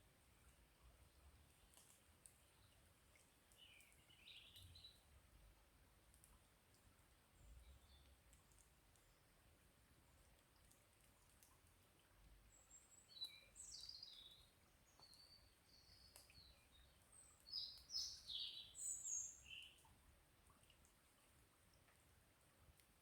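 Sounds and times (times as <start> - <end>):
songbird chirping: 2.4 - 5.0, 12.5 - 19.9.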